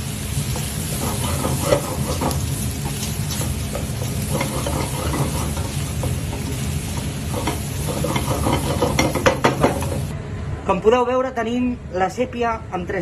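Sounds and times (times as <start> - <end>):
food sizzling in hot oil: 0.0 - 10.1
utensil scraping and clicking on pot: 0.5 - 10.1.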